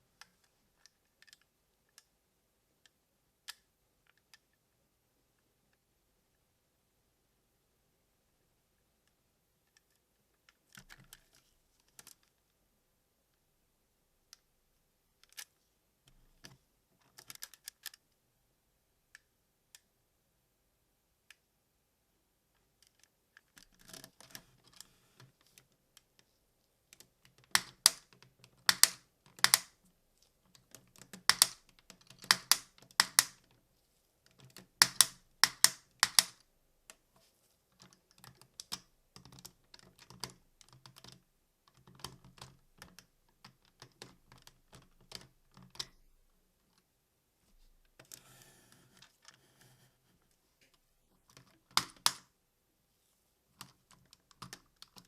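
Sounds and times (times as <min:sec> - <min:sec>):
plastic toy parts clicking: 0:00.2 - 0:02.1, 0:15.2 - 0:15.5, 0:16.4 - 0:18.0, 0:22.8 - 0:26.3, 0:26.9 - 0:29.8, 0:30.5 - 0:33.6, 0:34.2 - 0:37.0, 0:37.7 - 0:46.1, 0:50.7 - 0:52.3, 0:53.6 - 0:55.0
sharp plastic snaps: 0:26.9 - 0:29.8, 0:30.5 - 0:33.6, 0:34.3 - 0:37.0, 0:50.6 - 0:52.3.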